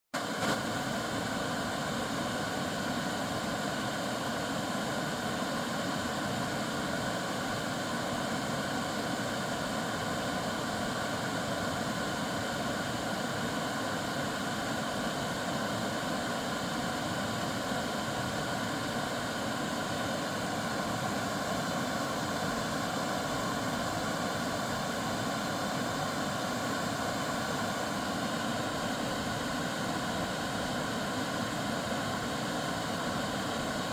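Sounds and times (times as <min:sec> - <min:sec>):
small waterfall rushing: 0:00.2 - 0:33.9.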